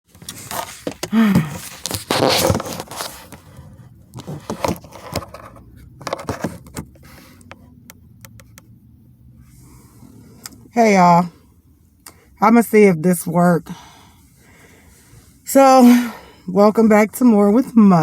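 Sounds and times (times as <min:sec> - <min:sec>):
phone handling noise: 0:04.2 - 0:07.6.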